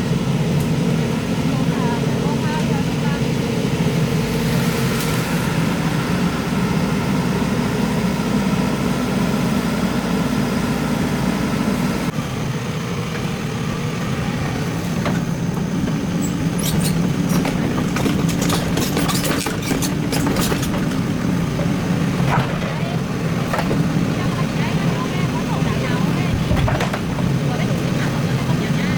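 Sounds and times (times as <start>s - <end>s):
excavator diesel engine running: 0.0s - 28.9s
sharp knocks and clatters: 15.0s - 24.3s, 26.4s - 27.4s.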